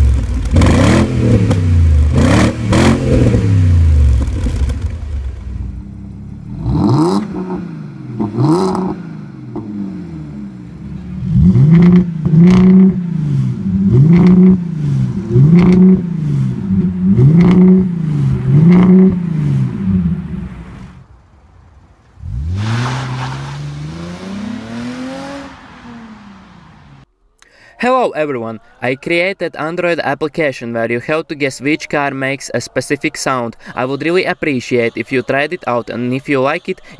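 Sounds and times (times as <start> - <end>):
car engine revving: 0.0 - 27.1.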